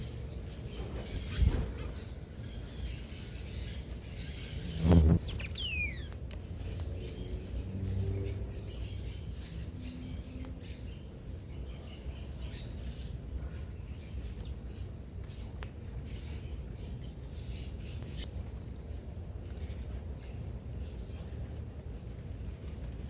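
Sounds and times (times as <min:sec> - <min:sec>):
small birds chirping: 0:00.0 - 0:21.6
falling whistled bird note: 0:04.8 - 0:06.1.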